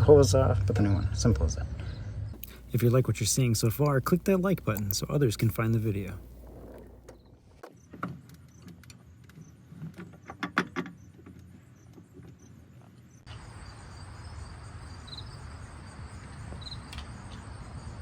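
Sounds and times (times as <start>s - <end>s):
light clicks and taps: 2.4s - 6.1s
cricket chirps: 13.1s - 18.0s.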